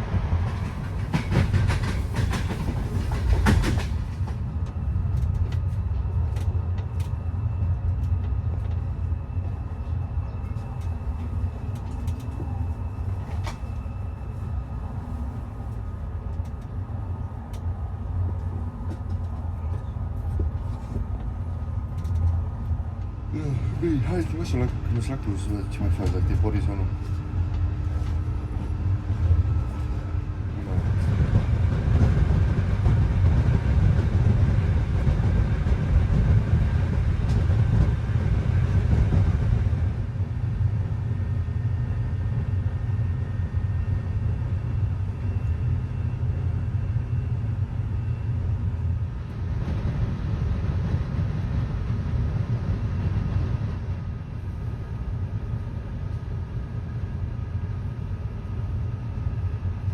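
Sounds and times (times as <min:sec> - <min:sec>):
train wheels rumbling: 0:00.0 - 0:44.1.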